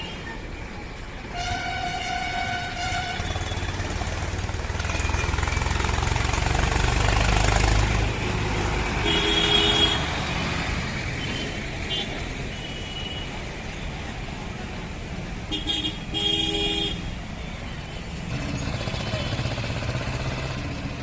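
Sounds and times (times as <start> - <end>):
tractor engine rumble: 0.0 - 12.5
vehicle horn: 1.3 - 3.9, 9.0 - 10.2, 15.5 - 17.1.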